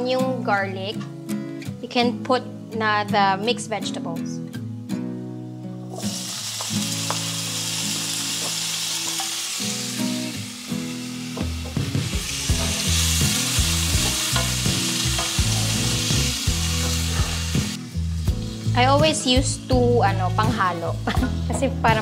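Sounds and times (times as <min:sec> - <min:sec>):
vegetables sizzling in hot oil: 0:05.8 - 0:22.0.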